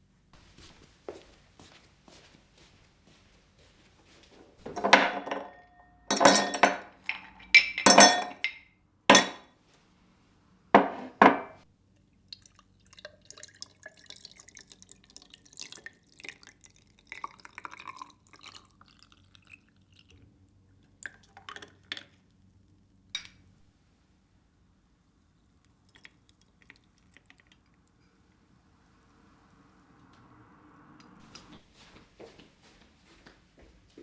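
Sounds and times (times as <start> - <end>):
glass and dishware clinking: 4.6 - 9.5, 10.8 - 11.6, 23.2 - 23.5.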